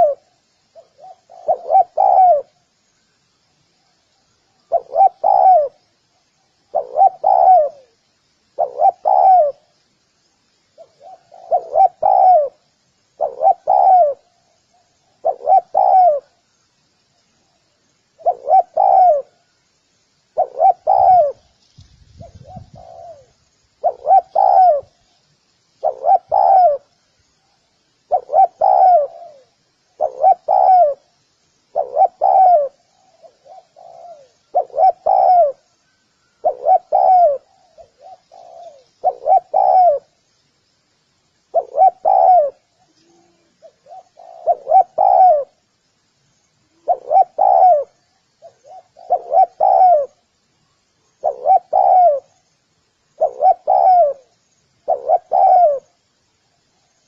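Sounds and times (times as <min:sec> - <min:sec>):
dove cooing: 0:00.0 - 0:02.6, 0:04.6 - 0:05.9, 0:06.6 - 0:08.0, 0:08.6 - 0:09.7, 0:10.8 - 0:12.6, 0:13.2 - 0:16.4, 0:18.2 - 0:19.5, 0:20.4 - 0:21.5, 0:22.2 - 0:25.0, 0:25.8 - 0:27.0, 0:28.1 - 0:31.1, 0:31.7 - 0:40.2, 0:41.5 - 0:45.6, 0:46.6 - 0:50.3, 0:51.2 - 0:52.4, 0:53.1 - 0:56.0.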